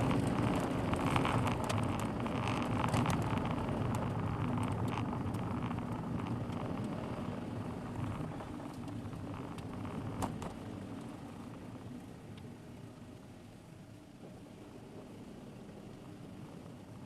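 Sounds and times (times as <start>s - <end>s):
road and engine noise: 0.0s - 17.0s
small clicks: 0.2s - 7.0s.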